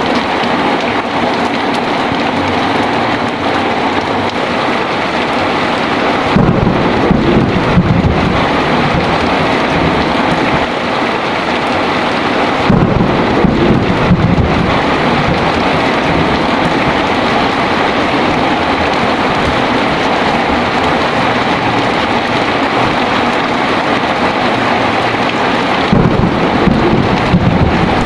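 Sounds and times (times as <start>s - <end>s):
heavy rain: 0.0s - 28.0s
thunder rolling: 5.2s - 28.0s.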